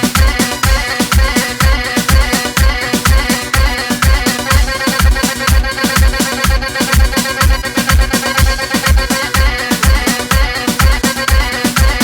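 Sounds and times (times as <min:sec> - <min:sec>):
electronic keyboard tones: 0:00.0 - 0:12.0
heavy drum beat: 0:00.0 - 0:12.0
sliding drum sounds: 0:00.0 - 0:12.0.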